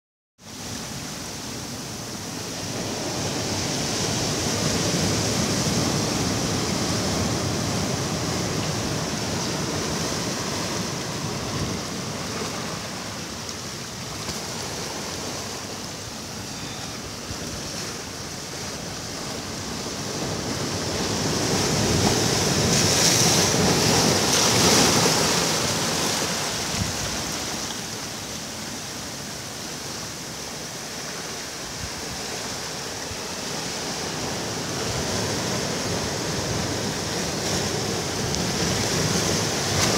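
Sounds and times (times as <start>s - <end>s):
waves breaking on beach: 0.4s - 39.9s.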